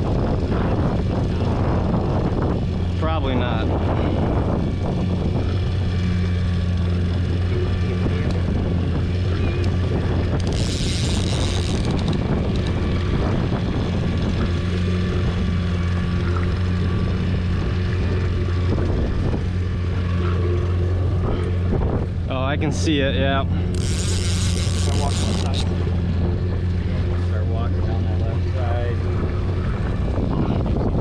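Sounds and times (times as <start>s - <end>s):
boat motor humming: 0.0s - 31.0s.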